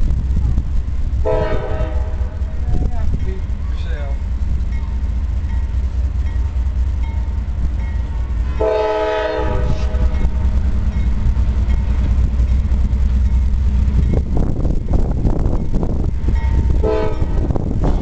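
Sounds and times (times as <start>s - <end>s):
freight train rattle and clatter: 0.0s - 18.0s
low diesel rumble: 0.0s - 18.0s
locomotive air horn blast: 1.2s - 2.4s, 8.6s - 10.1s, 16.8s - 17.4s.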